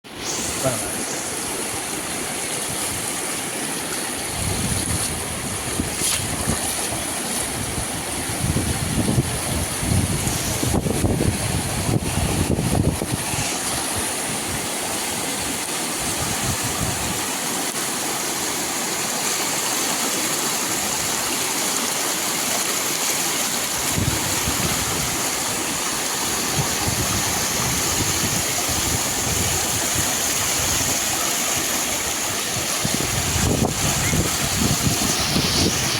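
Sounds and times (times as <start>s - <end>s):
floodwater rushing: 0.0s - 35.9s
wind buffeting microphone: 4.2s - 14.7s, 23.8s - 25.7s, 26.3s - 35.9s.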